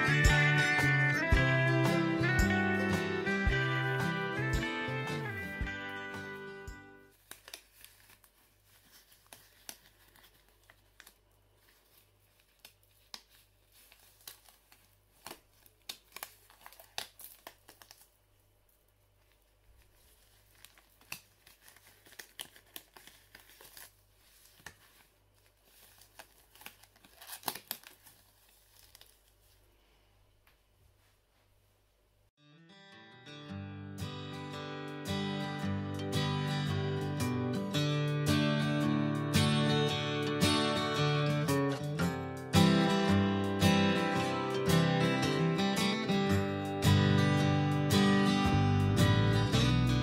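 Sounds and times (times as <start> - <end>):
latex gloves crinkling: 7.1 - 29.9.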